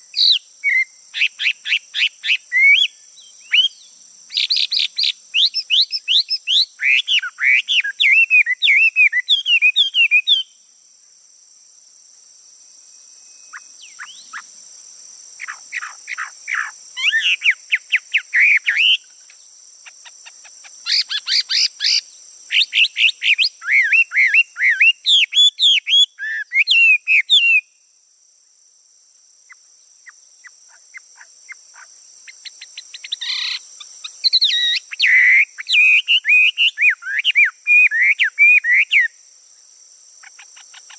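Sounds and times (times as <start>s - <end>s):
high-pitched insect drone: 0.0s - 28.3s, 29.2s - 40.9s
songbird warbling: 13.3s - 14.5s, 15.4s - 19.0s, 19.9s - 27.6s, 33.0s - 39.1s.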